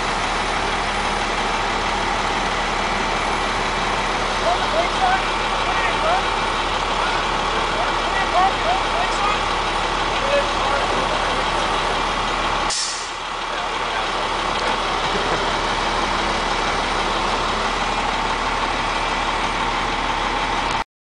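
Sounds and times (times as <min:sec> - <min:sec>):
heavy truck engine running: 0:00.0 - 0:20.8
air hiss: 0:12.7 - 0:13.2.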